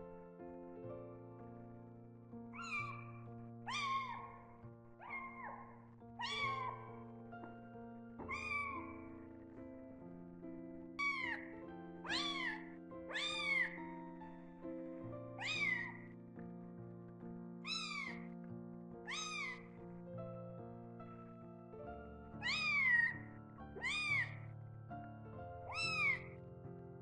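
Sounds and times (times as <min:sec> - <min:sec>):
soft background music: 0:00.0 - 0:27.0
kitten meowing: 0:02.5 - 0:07.1, 0:08.2 - 0:09.4, 0:11.0 - 0:13.9, 0:15.4 - 0:16.1, 0:17.6 - 0:18.3, 0:19.0 - 0:19.7, 0:22.4 - 0:23.2, 0:23.8 - 0:24.5, 0:25.6 - 0:26.4.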